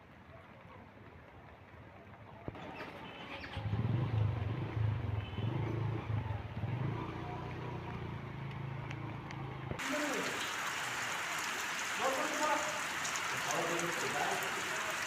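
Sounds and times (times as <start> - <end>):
vehicle engine droning: 2.5 - 10.0.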